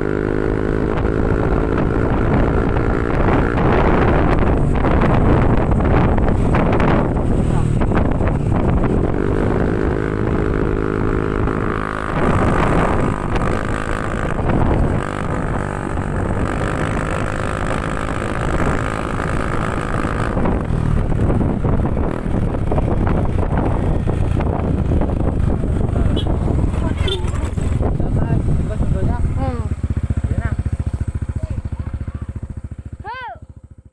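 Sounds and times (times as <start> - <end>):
wind noise on microphone: 0.0 - 31.2
scooter engine running: 0.0 - 33.9.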